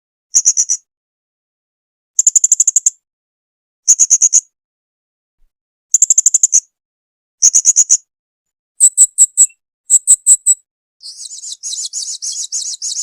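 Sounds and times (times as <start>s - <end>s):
parrot chattering trill: 8.8s - 10.6s
parrot high-pitched chirps: 8.8s - 13.0s.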